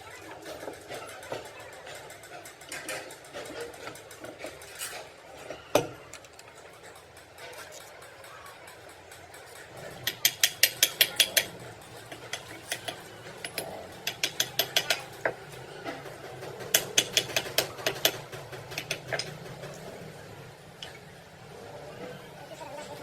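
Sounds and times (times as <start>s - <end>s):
ratchet wrench clicking: 9.7s - 15.4s, 16.6s - 19.3s.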